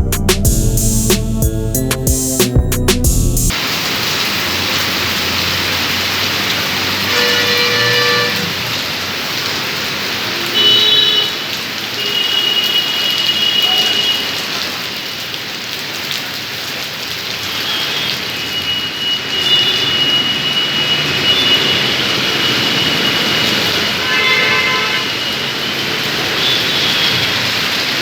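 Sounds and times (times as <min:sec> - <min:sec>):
short pitched sound: 0:00.0 - 0:03.5
heavy rain pouring: 0:03.0 - 0:28.0.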